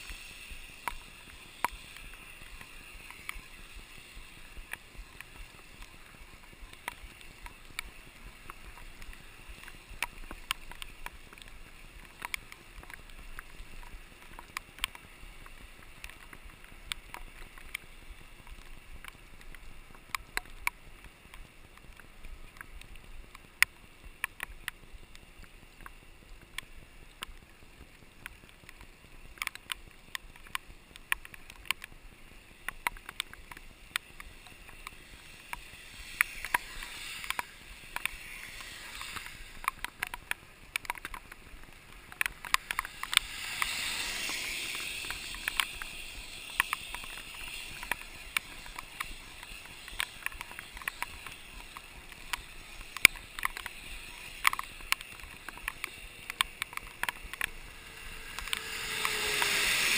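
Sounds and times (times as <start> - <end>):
wet tyre hiss: 0.0 - 12.8, 33.6 - 40.7, 41.5 - 59.9
raindrops ticking on camera: 0.0 - 59.9.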